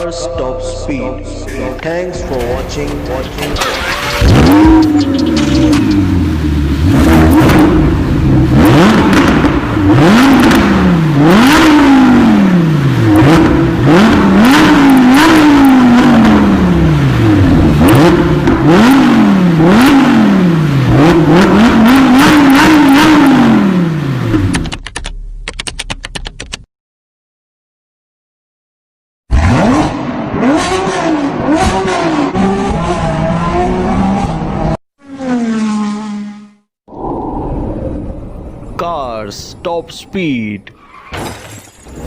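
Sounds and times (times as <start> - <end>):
car engine revving: 1.5 - 24.8, 29.3 - 36.7.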